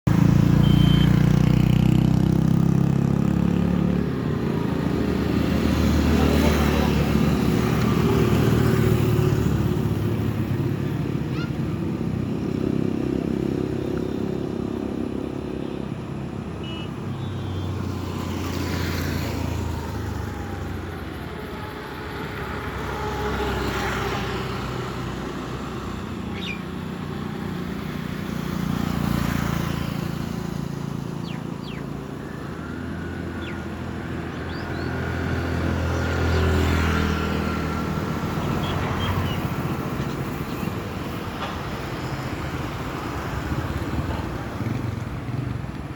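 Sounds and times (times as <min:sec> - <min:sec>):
motor vehicles passing: 0:00.1 - 0:45.9.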